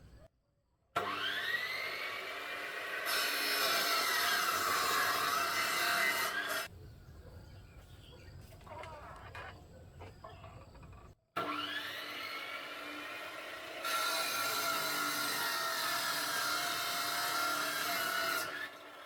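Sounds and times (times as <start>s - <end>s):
power saw cutting wood: 1.0s - 6.7s, 11.4s - 19.0s.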